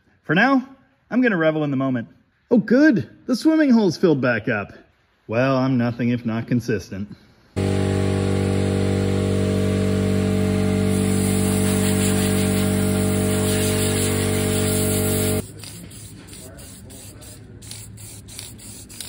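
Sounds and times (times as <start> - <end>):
car engine idling: 7.6 - 15.4.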